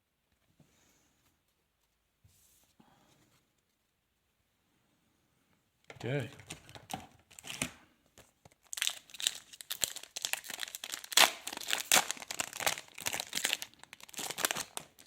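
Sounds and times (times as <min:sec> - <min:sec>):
card pack wrapper crinkling and tearing: 0:06.1 - 0:15.0.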